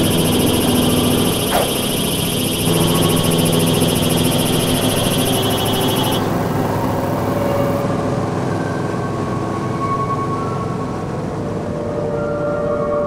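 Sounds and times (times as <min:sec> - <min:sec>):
rapid high-pitched pulsing: 0:00.0 - 0:07.9
light aircraft engine drone: 0:00.0 - 0:13.0.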